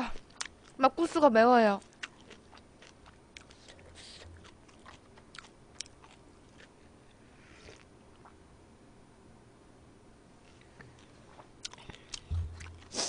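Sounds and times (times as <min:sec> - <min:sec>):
faint chewing: 0:00.1 - 0:00.8, 0:01.8 - 0:08.4, 0:10.4 - 0:13.0.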